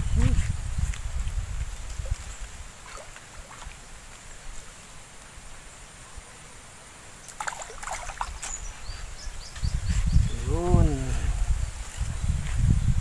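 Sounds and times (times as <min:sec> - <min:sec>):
low wind rumble: 0:00.0 - 0:02.8, 0:08.6 - 0:13.0
water splashing and sloshing: 0:01.5 - 0:04.3, 0:07.3 - 0:08.8.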